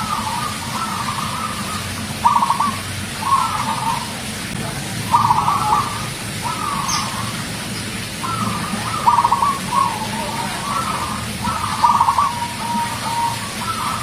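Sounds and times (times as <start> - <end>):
dove cooing: 0.0 - 14.0.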